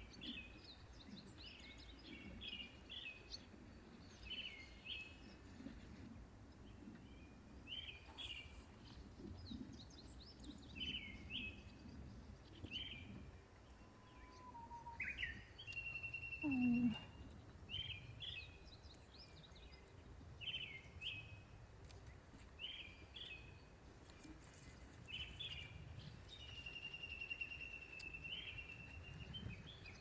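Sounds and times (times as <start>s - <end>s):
faint low outdoor rumble: 0.0s - 30.0s
small birds chirping: 6.6s - 30.0s.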